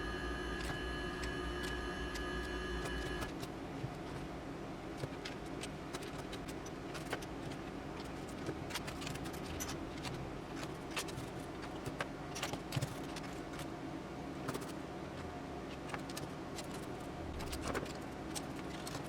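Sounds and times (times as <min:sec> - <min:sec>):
low hum: 0:00.0 - 0:03.3.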